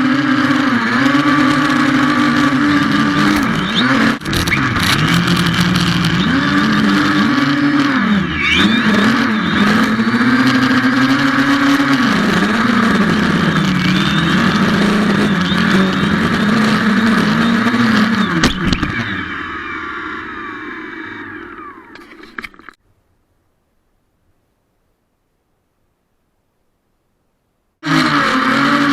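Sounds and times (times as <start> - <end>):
drone propellers whirring: 0.0 - 22.8.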